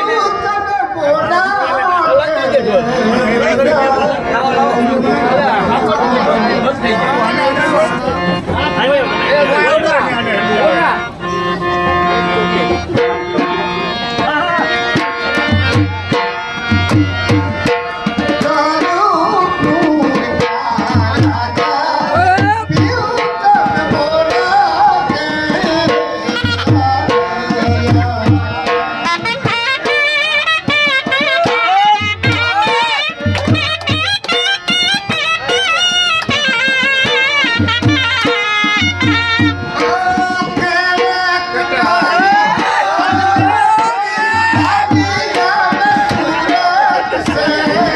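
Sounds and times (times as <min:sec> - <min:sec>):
double-reed pipe melody: 0:04.1 - 0:15.6
drumming: 0:12.7 - 0:47.9.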